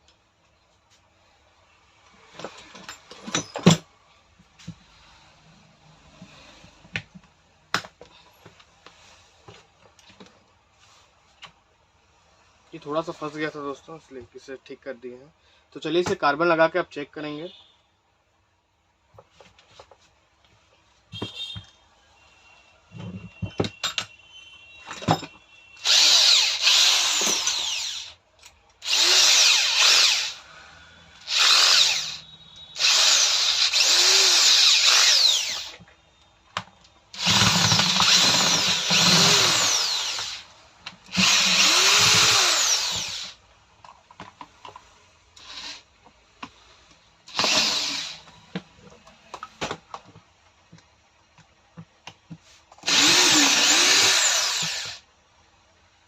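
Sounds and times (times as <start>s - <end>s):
rotary hammer motor running: 25.8s - 28.1s, 28.8s - 30.4s, 31.2s - 32.2s, 32.8s - 35.8s, 37.2s - 40.4s, 41.1s - 43.4s, 47.3s - 48.2s, 52.8s - 55.0s.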